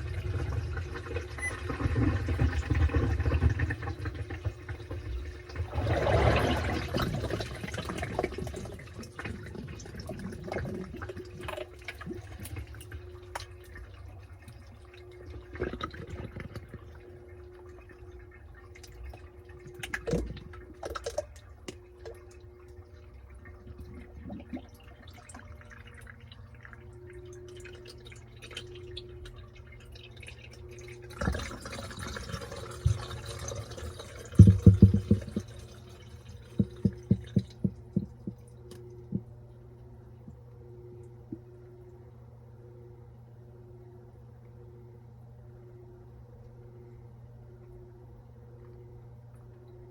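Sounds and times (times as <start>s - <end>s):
water sloshing in washing machine: 0.0s - 42.0s
low steady hum: 0.0s - 49.9s
washing machine motor whining: 0.0s - 49.9s
small knocks: 36.6s - 39.3s.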